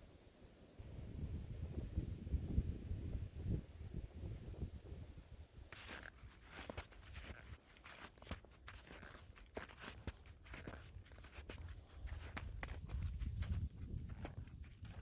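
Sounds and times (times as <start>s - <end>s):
footsteps crunching in snow: 5.7s - 15.0s.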